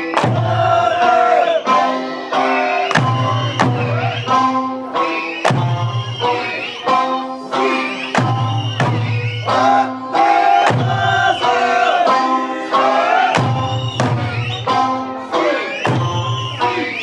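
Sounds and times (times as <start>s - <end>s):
drum strikes on a steady beat: 0.0s - 1.4s, 2.8s - 15.2s, 15.8s - 17.0s
plucked lute accompaniment: 0.0s - 17.0s
person singing: 14.2s - 15.9s.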